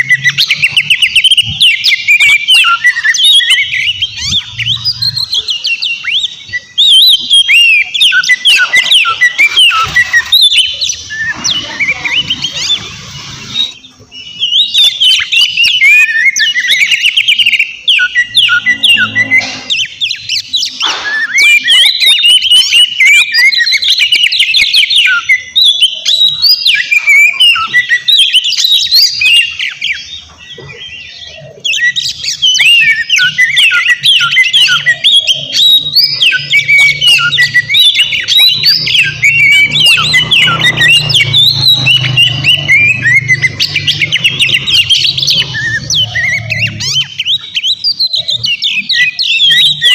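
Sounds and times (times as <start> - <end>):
magpie-robin singing: 0.0 - 49.9.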